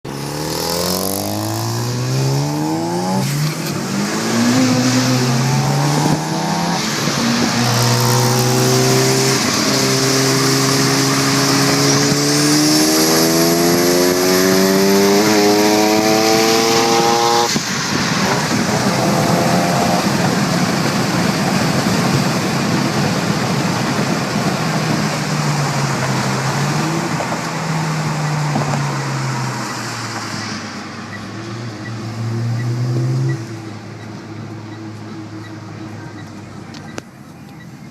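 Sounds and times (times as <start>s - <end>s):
wind and road noise: 0.0s - 37.9s
sports car engine accelerating: 0.1s - 17.6s, 18.7s - 20.6s.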